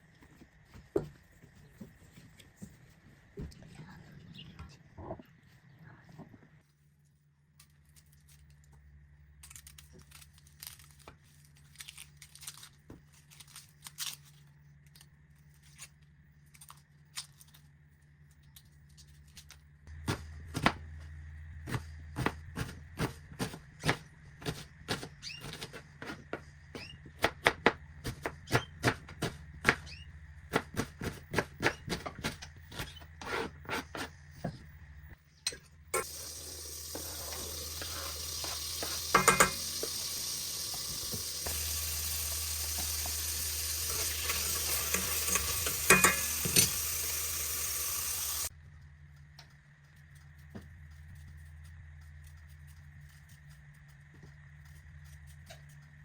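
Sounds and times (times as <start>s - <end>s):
food sizzling in hot oil: 36.0s - 48.5s
metal utensil clanking on pan: 38.8s - 39.8s, 44.9s - 46.8s.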